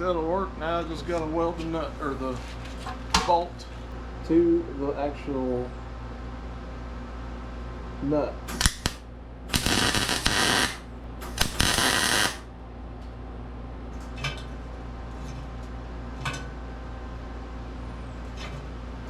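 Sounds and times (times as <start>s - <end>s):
welding crackling hiss: 8.5s - 12.5s
low hum: 8.5s - 12.8s.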